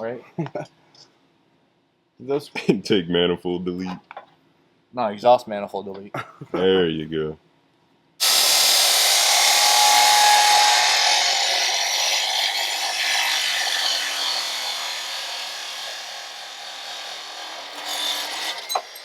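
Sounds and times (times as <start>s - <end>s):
power tool cutting metal tubing: 8.2s - 19.0s.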